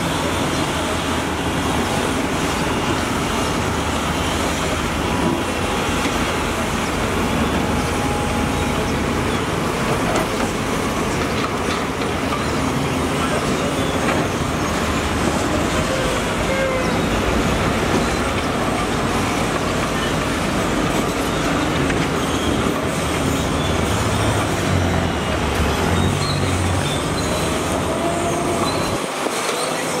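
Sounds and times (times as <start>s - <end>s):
heavy diesel machinery running: 0.0s - 30.0s.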